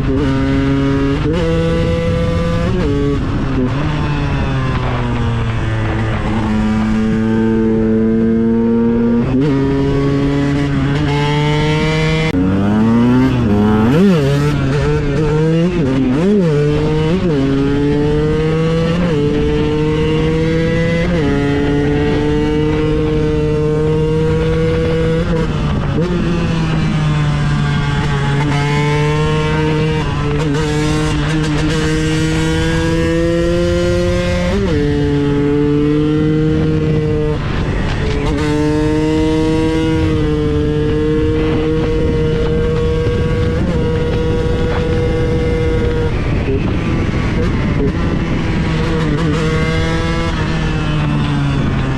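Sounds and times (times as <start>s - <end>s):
two-stroke engine accelerating: 0.0s - 51.9s.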